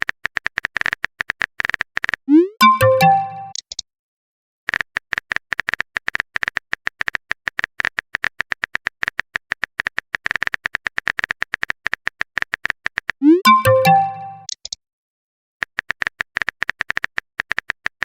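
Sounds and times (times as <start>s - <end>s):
keyboard typing clicks: 2.3s - 3.7s, 9.9s - 14.8s.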